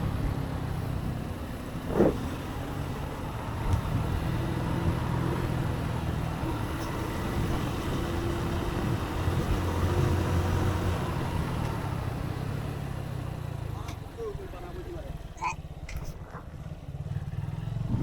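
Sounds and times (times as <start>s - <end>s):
motorcycle engine running: 11.8s - 18.0s.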